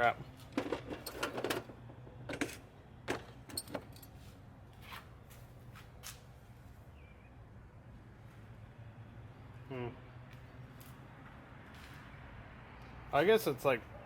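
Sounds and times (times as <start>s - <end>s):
small metal parts clinking: 3.2s - 4.2s.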